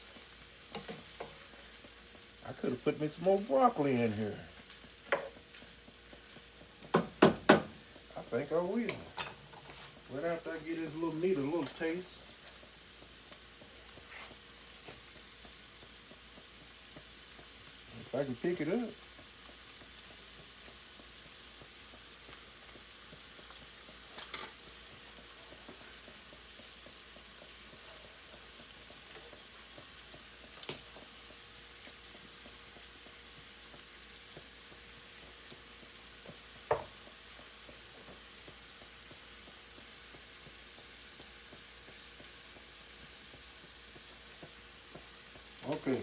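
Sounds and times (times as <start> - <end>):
food sizzling in a skillet: 0.0 - 46.0
utensil knocking against pan: 5.1 - 5.4, 6.8 - 8.0, 36.7 - 37.0.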